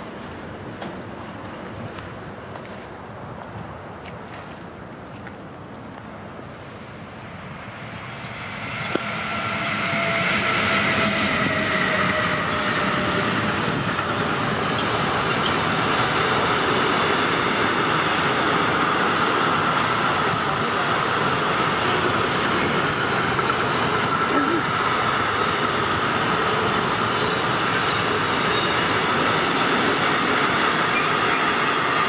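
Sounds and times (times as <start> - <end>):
freight train rolling past: 6.5 - 32.0
high ringing from train wheels: 8.1 - 20.2, 21.6 - 32.0.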